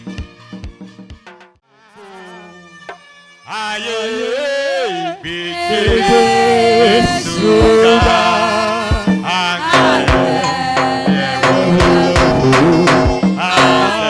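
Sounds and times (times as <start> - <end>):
steady drum beat: 5.9 - 14.0.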